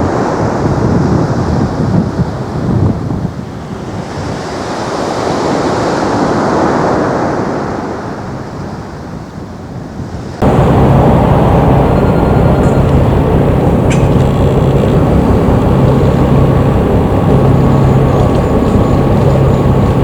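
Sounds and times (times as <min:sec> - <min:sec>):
wind on microphone: 0:00.0 - 0:20.0
jet engine rushing: 0:10.4 - 0:20.0
low hum: 0:10.4 - 0:20.0.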